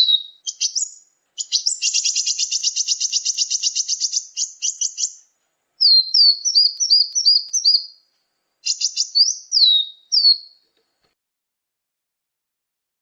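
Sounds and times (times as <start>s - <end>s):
small songbird chirping: 0.0s - 11.1s.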